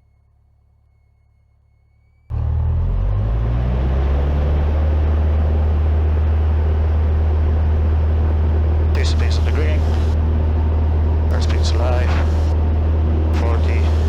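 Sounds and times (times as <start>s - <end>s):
aircraft engine droning: 0.0s - 14.0s
faint hum: 5.9s - 14.0s.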